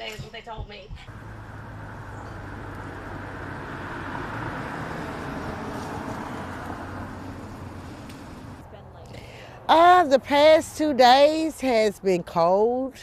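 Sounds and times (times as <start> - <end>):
vehicle engine hum: 1.1 - 10.6.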